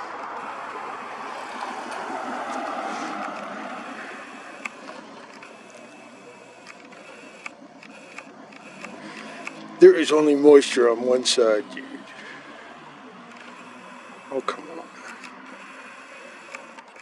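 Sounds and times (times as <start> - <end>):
distant jet airliner: 0.0 - 17.0
faint clicks: 1.5 - 9.8, 14.9 - 17.0.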